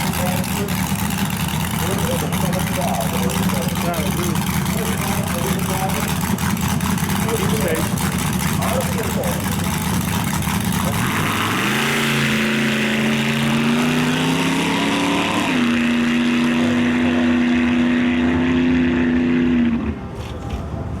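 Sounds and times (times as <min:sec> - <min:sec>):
dragster engine under power: 0:00.0 - 0:20.1.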